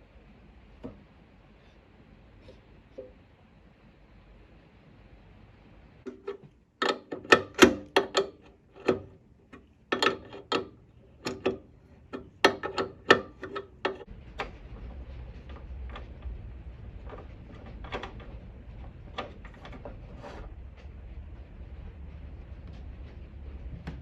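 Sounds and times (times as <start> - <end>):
hand tools knocking on engine parts: 6.1 - 14.1.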